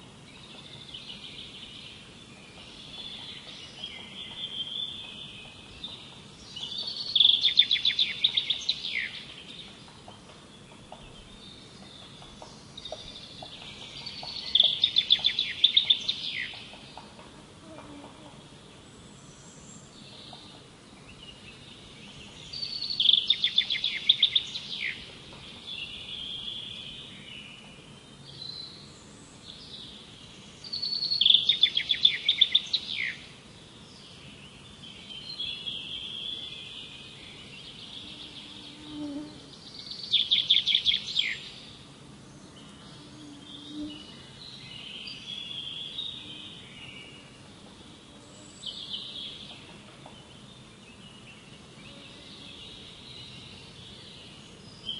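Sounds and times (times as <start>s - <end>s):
bird song phrase: 0.2s - 54.9s
soft bird chirps: 0.4s - 17.2s.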